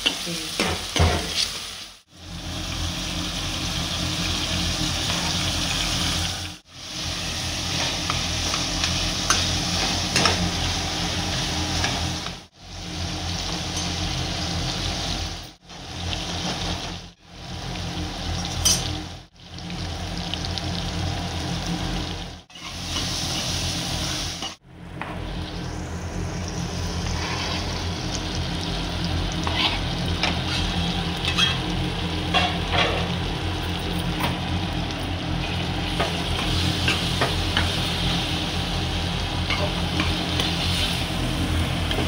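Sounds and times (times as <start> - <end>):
onions sizzling in hot oil: 0.0 - 42.0
spatula clicking and scraping pan: 29.4 - 31.7.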